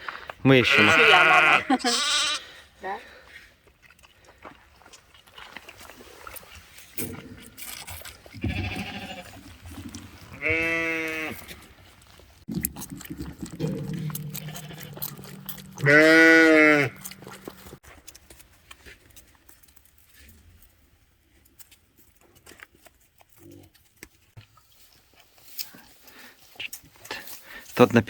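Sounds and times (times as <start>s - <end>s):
lambs bleating: 0.6s - 2.4s, 8.4s - 9.4s, 10.3s - 11.5s, 13.8s - 17.5s.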